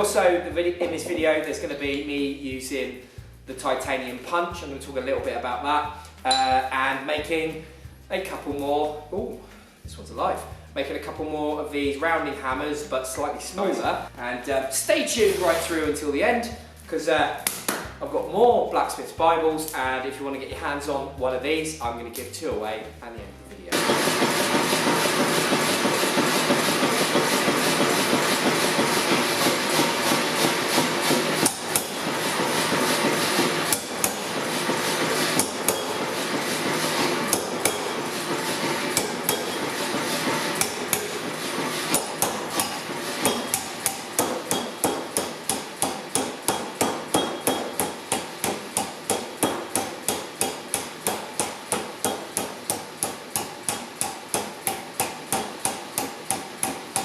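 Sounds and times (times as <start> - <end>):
hammer striking steel on anvil: 6.3 - 6.6, 23.7 - 57.0.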